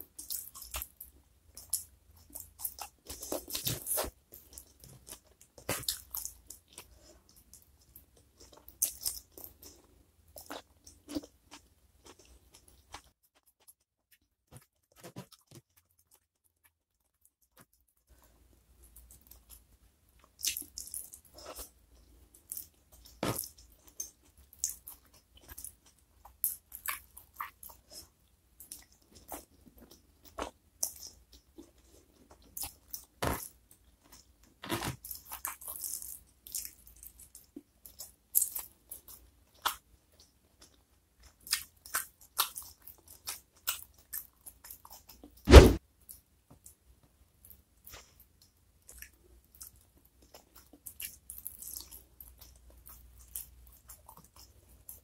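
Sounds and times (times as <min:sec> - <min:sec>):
chewing and crunching food: 0:00.0 - 0:45.4, 0:46.0 - 0:55.0
heavy thump: 0:45.5 - 0:45.8.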